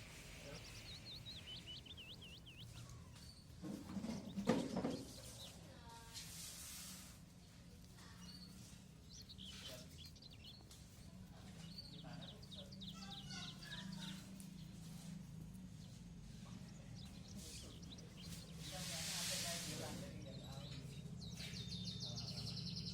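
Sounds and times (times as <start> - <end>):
sparrow chirping: 0.0 - 6.0, 7.3 - 22.9
faint low hum: 0.0 - 6.1.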